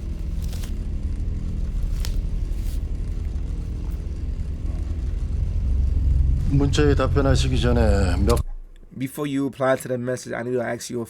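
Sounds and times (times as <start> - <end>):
low droning rumble: 0.0 - 9.0.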